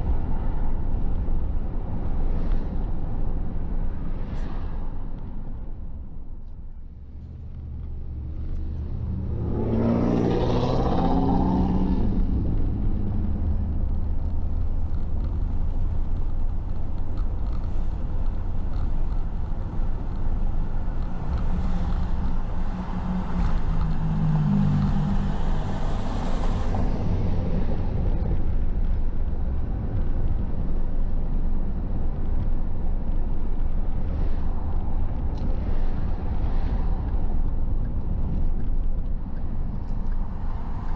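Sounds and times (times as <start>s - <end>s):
car engine accelerating: 7.0s - 28.5s.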